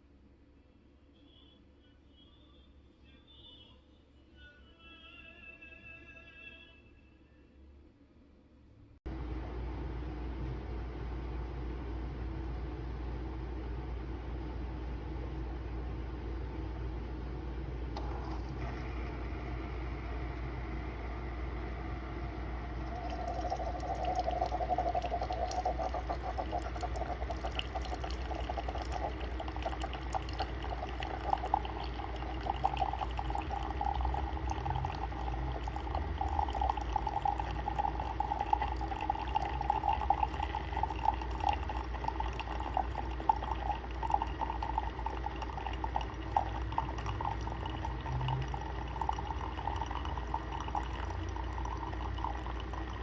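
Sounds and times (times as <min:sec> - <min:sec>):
low machine hum: 0:07.1 - 0:53.0
coffee streaming into mug: 0:17.9 - 0:53.0.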